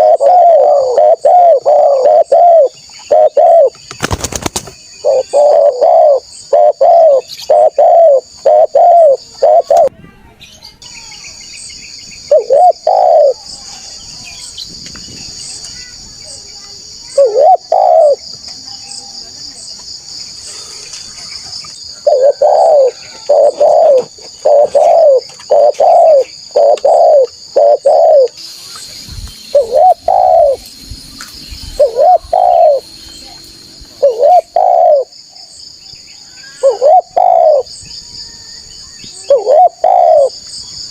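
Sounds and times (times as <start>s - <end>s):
dove cooing: 0.0s - 3.8s, 5.0s - 9.9s, 12.3s - 13.4s, 17.1s - 18.2s, 22.0s - 28.4s, 29.5s - 30.6s, 31.7s - 32.8s, 34.0s - 35.2s, 36.5s - 37.7s, 39.2s - 40.4s
high insect buzz: 22.2s - 35.8s.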